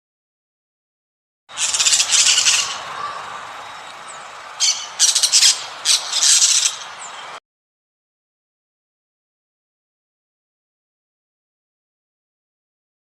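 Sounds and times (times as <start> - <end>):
animal rasping calls: 1.5 - 3.9, 4.5 - 6.9.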